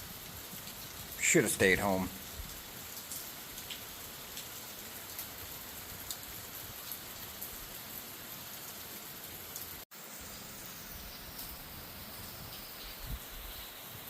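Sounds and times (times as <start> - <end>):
steady rain falling: 0.0 - 14.0
raindrops ticking: 0.4 - 7.5.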